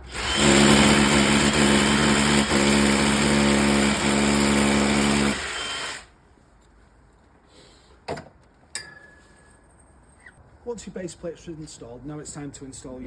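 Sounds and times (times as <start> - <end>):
electric drill running: 0.0 - 6.1.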